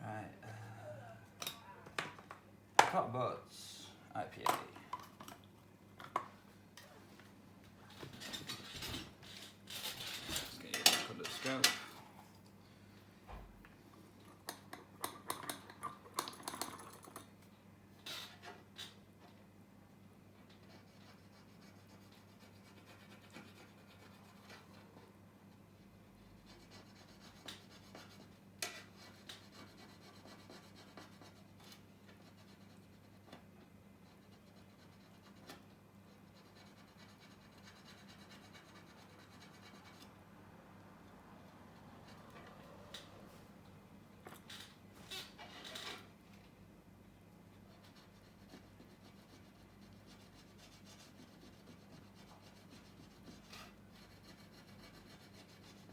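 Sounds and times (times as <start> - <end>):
faint low hum: 0.0 - 5.9.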